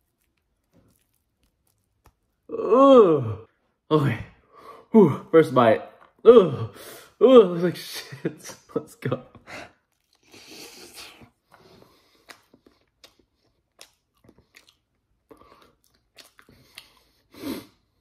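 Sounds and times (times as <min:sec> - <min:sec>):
person chewing: 0:00.0 - 0:03.1, 0:09.8 - 0:17.3.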